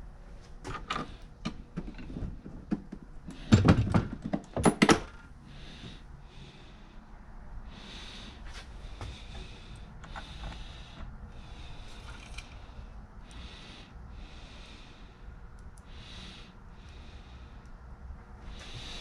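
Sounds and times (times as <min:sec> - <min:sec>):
man breathing: 0:05.2 - 0:19.0.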